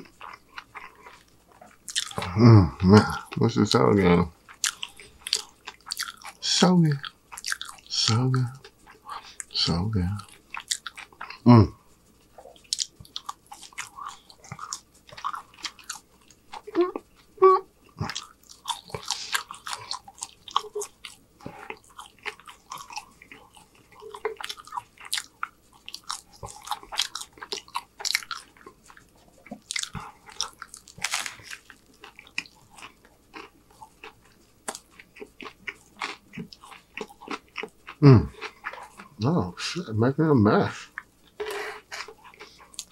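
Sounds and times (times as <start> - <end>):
chewing french fries: 0.0 - 40.0, 40.6 - 42.9.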